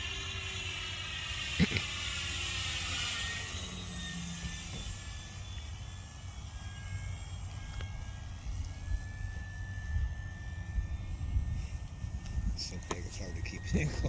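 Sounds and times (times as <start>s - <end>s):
model airplane motor whine: 0.0s - 14.0s
wind on microphone: 8.4s - 14.0s.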